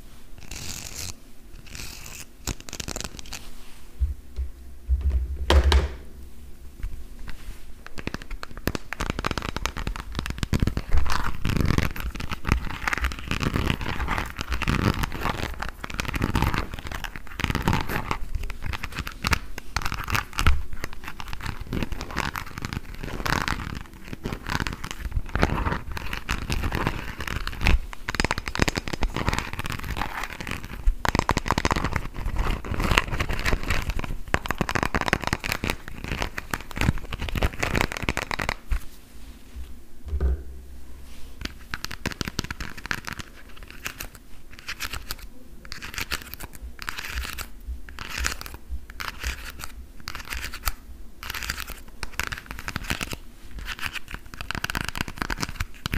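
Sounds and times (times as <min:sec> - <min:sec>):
tapping on plastic: 0:04.0 - 0:06.0.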